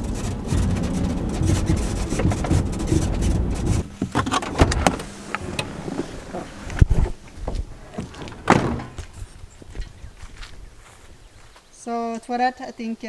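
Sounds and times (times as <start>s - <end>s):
car door thunking shut: 0.0s - 9.2s
van rumbling on rough road: 0.0s - 9.8s.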